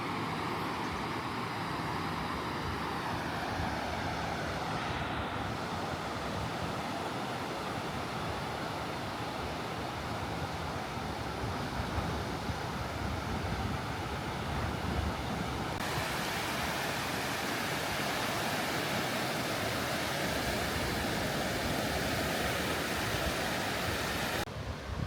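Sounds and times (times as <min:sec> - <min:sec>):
water rushing: 0:00.0 - 0:25.0
wind buffeting microphone: 0:10.2 - 0:17.1, 0:19.7 - 0:25.0.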